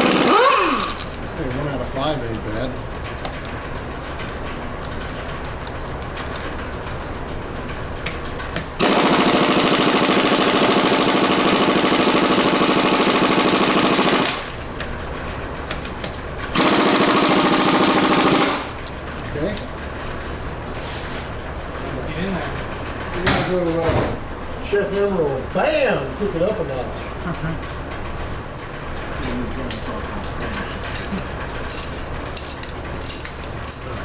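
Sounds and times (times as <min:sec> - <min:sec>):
pneumatic impact wrench hammering: 0:00.0 - 0:01.3, 0:08.8 - 0:14.9, 0:16.5 - 0:19.0, 0:30.8 - 0:34.0.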